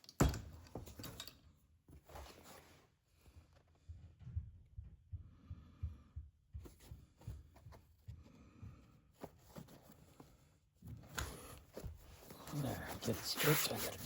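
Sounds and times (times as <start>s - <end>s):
foam padding rustling: 9.2s - 14.0s.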